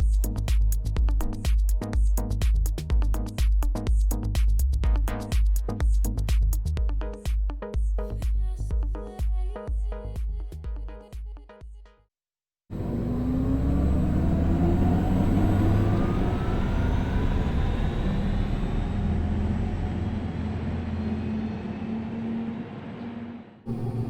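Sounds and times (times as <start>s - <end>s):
electric car synthetic hum rising: 12.7s - 24.0s
road and tyre noise: 12.7s - 24.0s.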